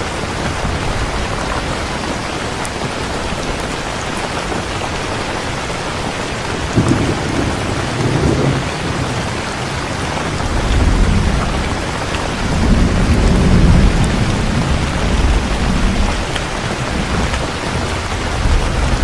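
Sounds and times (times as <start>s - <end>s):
heavy rain falling: 0.0s - 19.0s
thunder rumbling: 6.5s - 19.0s.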